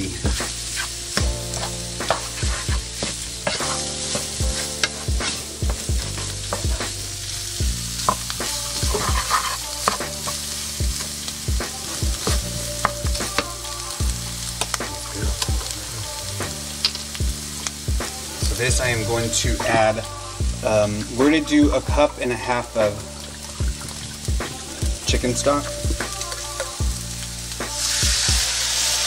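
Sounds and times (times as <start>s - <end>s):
food sizzling in a skillet: 0.0s - 29.0s
spatula scraping a pan: 0.3s - 7.0s, 8.0s - 11.2s.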